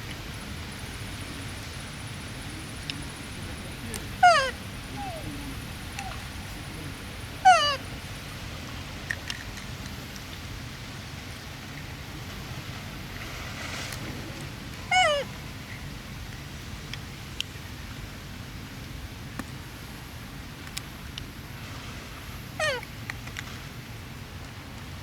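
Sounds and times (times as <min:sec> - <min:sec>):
baby monkey calling: 0:04.1 - 0:07.9, 0:14.8 - 0:15.4, 0:22.6 - 0:22.9.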